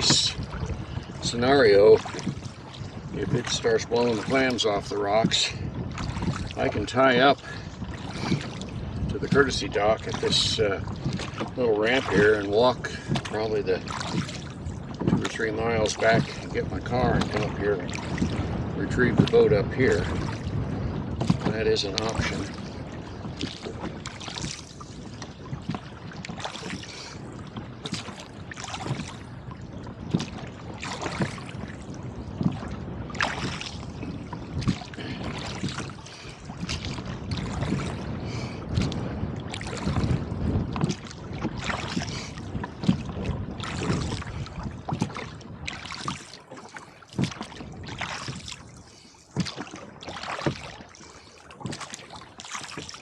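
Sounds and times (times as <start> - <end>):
water splashing against boat: 0.0 - 53.0
wind rushing: 16.0 - 25.7, 28.2 - 44.8.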